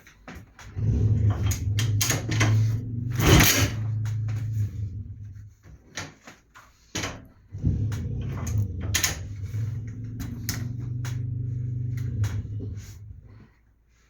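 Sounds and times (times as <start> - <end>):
clicks: 7.9 - 13.1.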